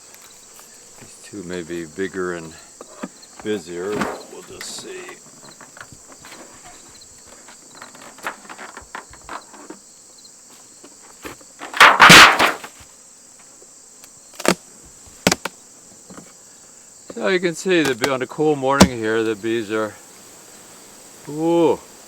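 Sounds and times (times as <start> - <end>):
insects chirring: 0.0 - 22.0
wooden hive parts knocking: 0.9 - 9.8, 10.7 - 12.9, 14.4 - 16.4, 17.0 - 19.4.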